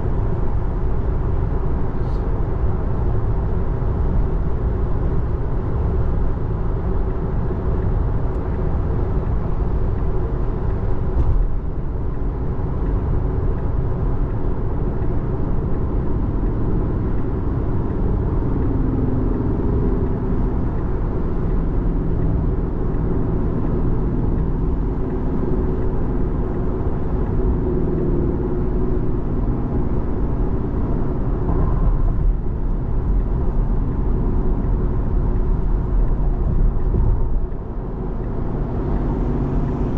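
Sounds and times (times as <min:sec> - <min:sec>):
road and tyre noise in car cabin: 0:00.0 - 0:39.9.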